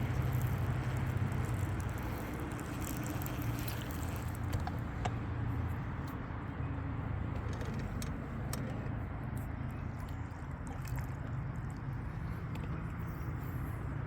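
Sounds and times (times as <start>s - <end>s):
water washing around boat: 9.9s - 12.9s.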